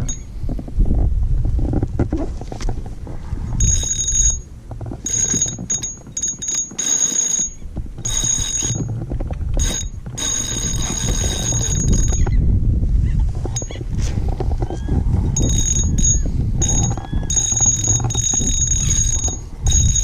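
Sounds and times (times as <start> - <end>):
constant low rumble: 0.0 - 20.0
fishing reel whirring: 5.1 - 8.9, 9.6 - 12.4, 15.4 - 20.0.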